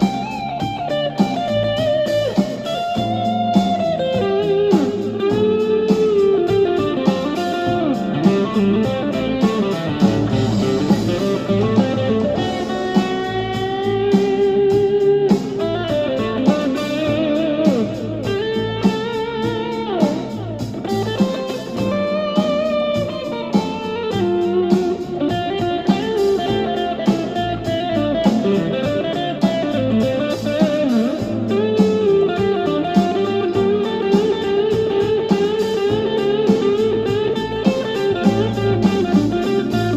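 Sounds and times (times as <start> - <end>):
blues backing track with drums: 0.0 - 39.9
electric guitar blues solo: 0.0 - 39.9.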